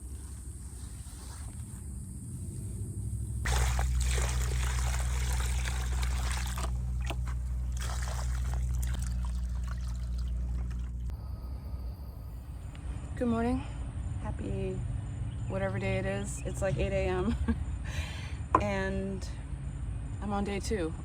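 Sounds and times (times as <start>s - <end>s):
low hum: 0.0s - 21.0s
water pouring: 3.5s - 11.1s.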